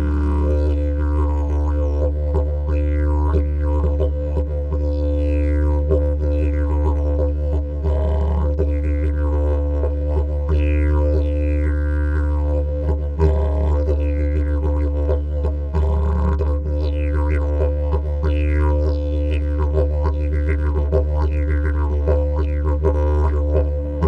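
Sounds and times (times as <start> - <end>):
didgeridoo drone: 0.0 - 24.0.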